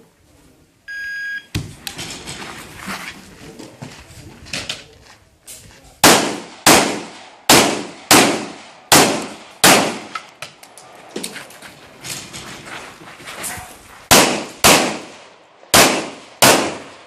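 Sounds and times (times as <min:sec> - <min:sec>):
pistol shots: 0:06.0 - 0:10.2, 0:14.1 - 0:17.0.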